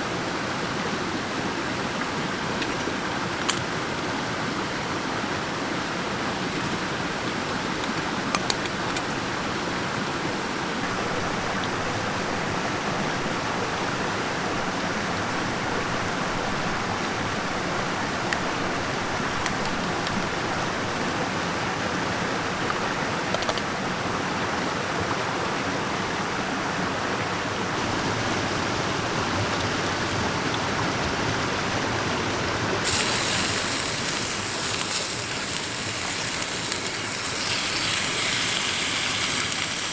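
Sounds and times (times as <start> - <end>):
stream flowing: 0.0 - 39.9
brief hissing burst: 32.8 - 39.9.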